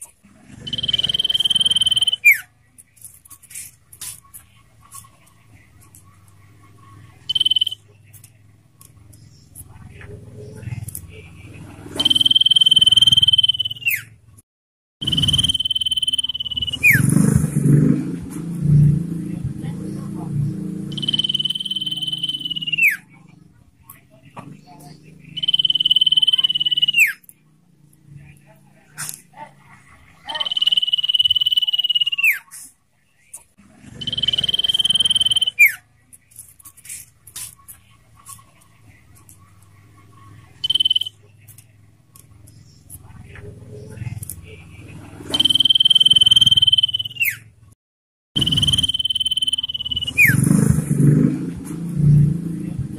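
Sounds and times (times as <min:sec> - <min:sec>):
bird whistling: 0:00.6 - 0:02.5, 0:07.3 - 0:07.8, 0:11.9 - 0:14.1, 0:15.0 - 0:17.2, 0:20.9 - 0:23.0, 0:25.3 - 0:27.2, 0:30.3 - 0:32.4, 0:34.0 - 0:35.8, 0:40.6 - 0:41.1, 0:45.3 - 0:47.5, 0:48.4 - 0:50.4.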